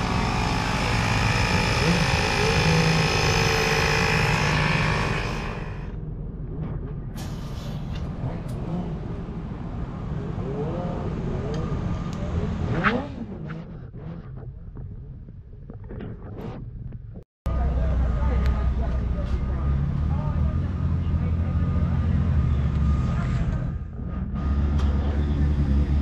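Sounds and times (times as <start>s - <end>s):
motorcycle engine revving: 0.0s - 6.0s, 17.5s - 26.0s
motorcycle engines running: 0.0s - 6.0s, 17.5s - 26.0s.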